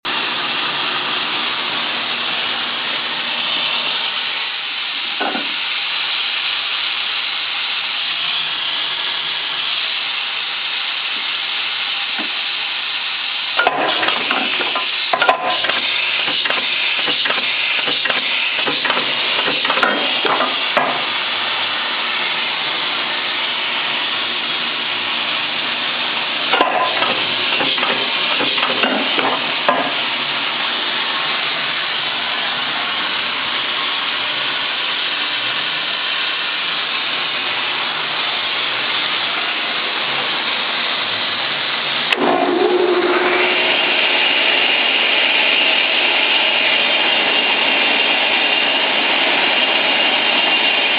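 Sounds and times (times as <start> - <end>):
pneumatic saw running: 0.6 - 50.9
sharp knocks and clatter: 13.6 - 21.0, 26.5 - 30.0.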